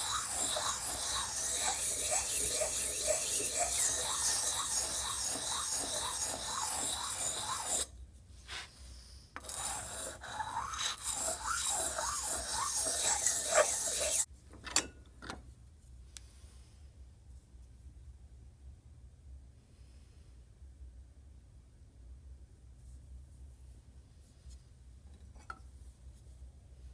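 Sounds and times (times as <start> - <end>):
hand file rasping on metal: 0.0 - 7.9, 9.4 - 14.3.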